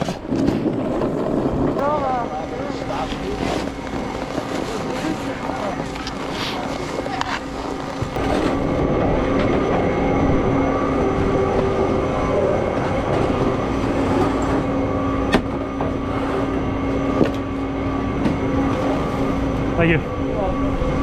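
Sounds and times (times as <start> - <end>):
mechanical rumble with low hum: 0.0 - 21.0.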